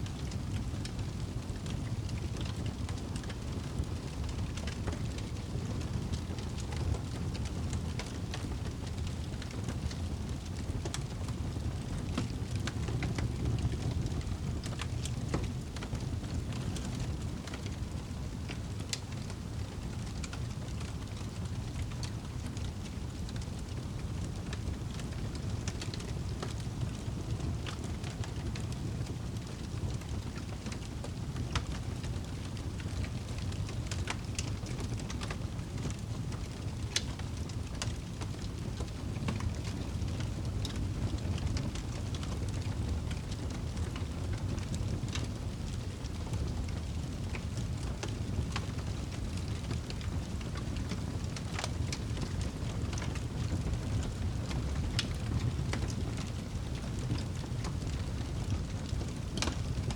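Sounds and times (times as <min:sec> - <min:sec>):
campfire crackling and popping: 0:00.2 - 0:59.9.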